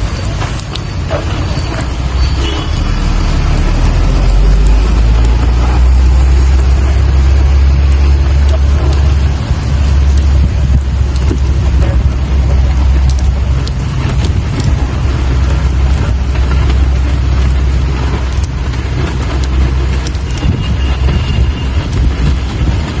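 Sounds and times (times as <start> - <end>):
deep rumble: 0.0 - 23.0
rain falling: 0.0 - 23.0
drop ticks: 0.2 - 0.9, 1.8 - 22.3.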